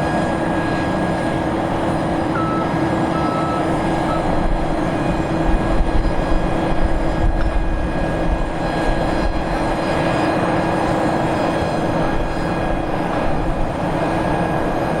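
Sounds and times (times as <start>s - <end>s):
turboprop engines drone: 0.0s - 15.0s.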